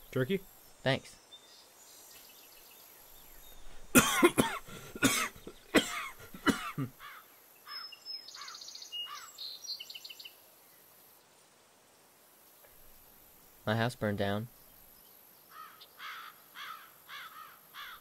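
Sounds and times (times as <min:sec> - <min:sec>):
birds chirping: 0:00.0 - 0:11.2, 0:12.5 - 0:18.0
man coughing: 0:03.9 - 0:07.0.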